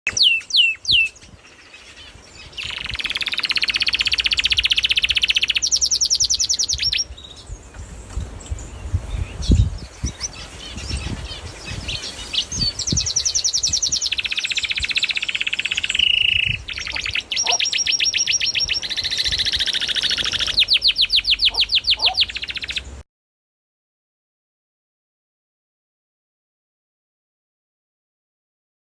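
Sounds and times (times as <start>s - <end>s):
birds chirping in rapid trills: 0.1s - 23.0s.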